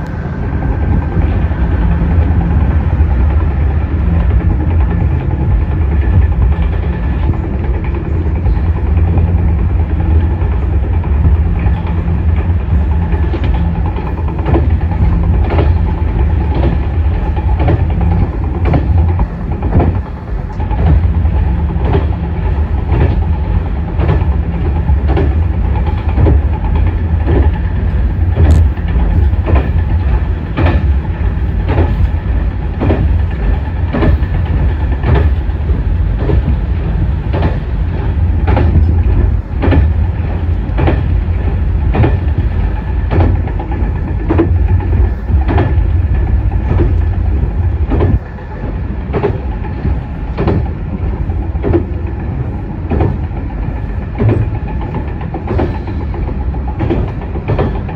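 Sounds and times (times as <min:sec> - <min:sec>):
railcar engine drone: 0:00.0 - 0:57.9
wheels clicking over rail joints: 0:00.0 - 0:57.9.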